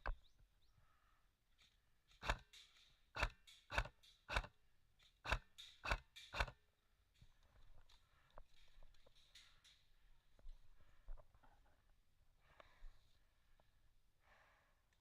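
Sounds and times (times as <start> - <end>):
sharp snaps: 2.1 - 4.5, 5.3 - 6.6.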